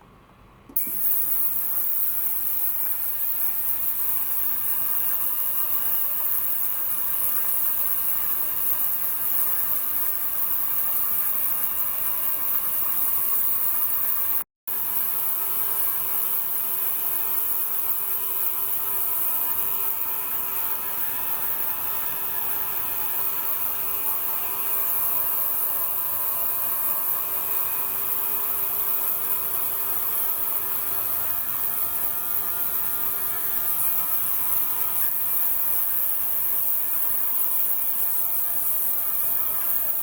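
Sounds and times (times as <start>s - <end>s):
ultrasonic cleaner hissing: 0.7s - 14.4s.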